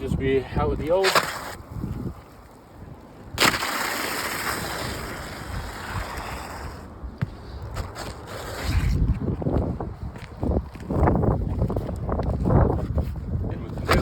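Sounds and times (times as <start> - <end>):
wind rumble on microphone: 0.0 - 14.0
shingle scraping as it slides: 0.8 - 1.7, 3.4 - 9.2
shingle cracking: 1.0 - 1.6, 3.3 - 6.2.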